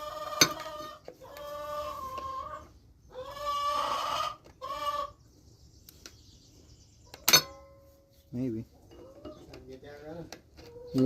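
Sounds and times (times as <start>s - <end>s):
chicken squawking: 0.0s - 5.2s.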